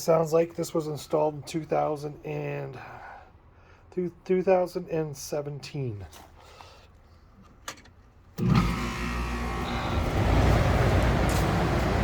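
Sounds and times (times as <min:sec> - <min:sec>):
air conditioner hum and airflow: 0:07.6 - 0:12.0.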